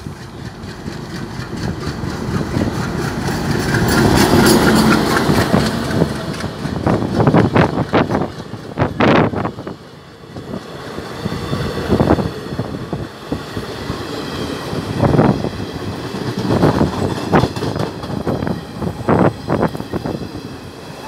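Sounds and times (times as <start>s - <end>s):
train wheels clattering over rail joints: 0.0s - 10.6s, 14.4s - 20.2s
train rushing past: 0.0s - 21.0s.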